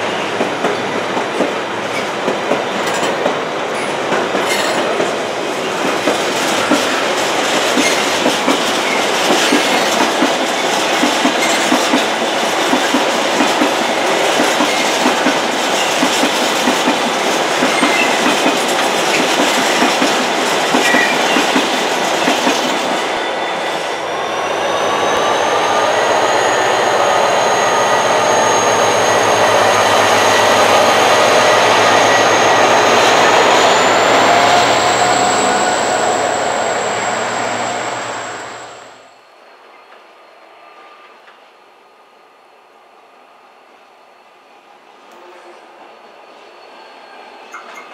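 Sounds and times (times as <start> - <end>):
train wagons clattering over rails: 0.0 - 23.2.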